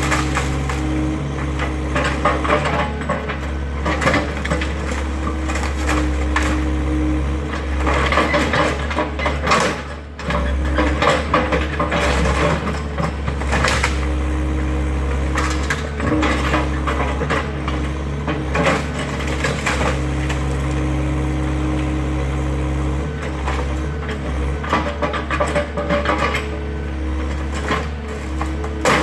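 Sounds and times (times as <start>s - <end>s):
wood cracking and splintering: 0.0s - 6.8s, 7.5s - 14.3s, 15.0s - 29.0s
excavator engine running: 0.0s - 29.0s.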